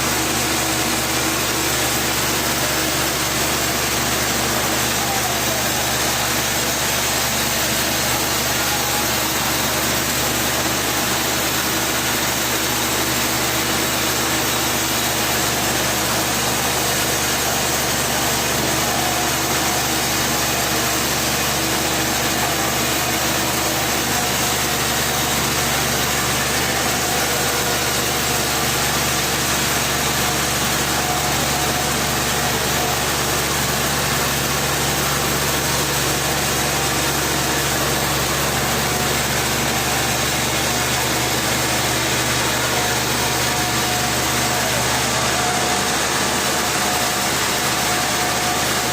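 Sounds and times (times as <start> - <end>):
engine running steadily: 0.0 - 48.9.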